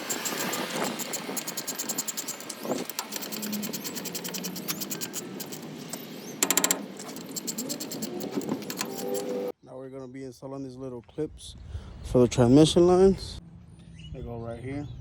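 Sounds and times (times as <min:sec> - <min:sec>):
ratchet wrench clicking: 0:00.0 - 0:09.5.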